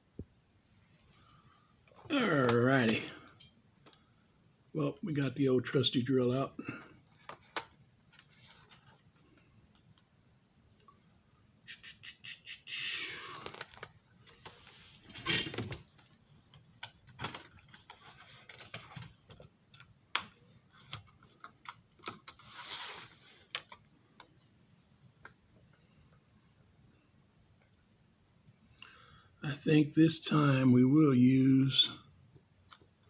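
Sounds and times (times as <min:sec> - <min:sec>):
rustling: 0:22.3 - 0:23.5.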